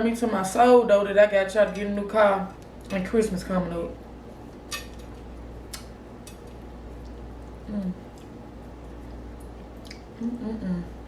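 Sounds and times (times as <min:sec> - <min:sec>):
low electrical hum: 0:00.0 - 0:11.0
mouth clicks and smacks chewing: 0:08.1 - 0:10.2
person humming: 0:10.2 - 0:10.9.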